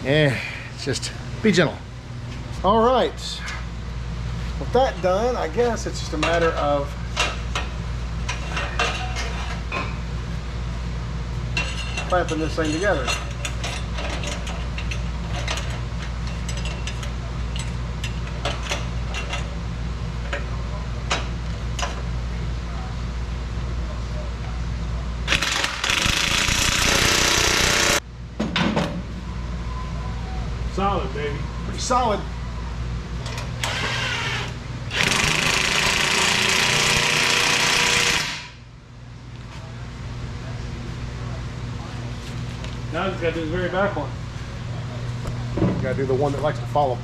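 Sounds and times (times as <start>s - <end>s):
steady low hum: 0.0s - 47.0s
power tool running: 25.3s - 28.0s, 33.6s - 38.6s.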